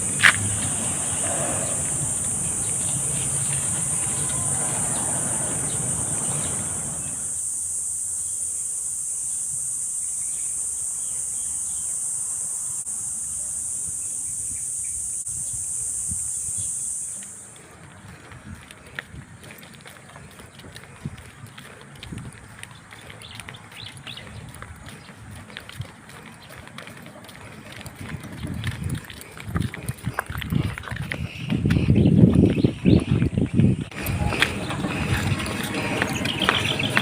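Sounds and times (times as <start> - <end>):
shrill insect chorus: 0.0 - 18.3, 33.9 - 37.0.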